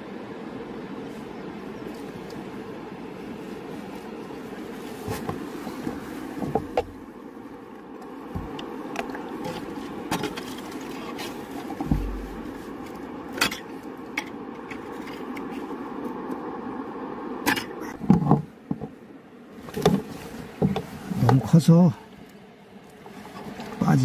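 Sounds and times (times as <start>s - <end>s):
river water running: 0.0s - 18.7s.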